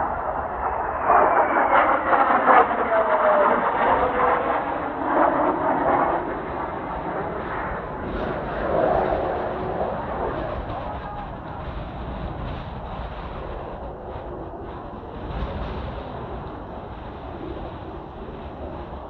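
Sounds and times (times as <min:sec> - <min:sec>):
jets flying past: 0:00.0 - 0:19.0.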